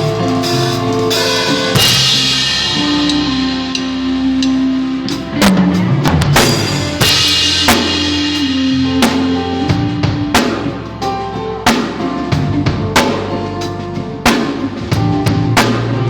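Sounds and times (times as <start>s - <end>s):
cymbal wash: 0.0s - 5.3s
band playing live: 0.0s - 16.0s.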